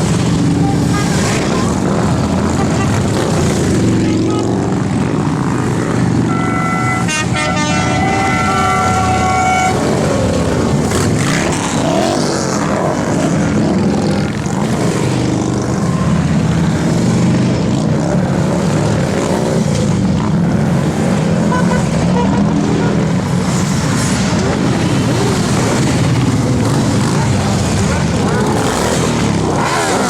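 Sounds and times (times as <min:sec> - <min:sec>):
motorcycle engines droning: 0:00.0 - 0:30.0
vehicle horn short toots: 0:06.3 - 0:10.0, 0:21.5 - 0:23.0.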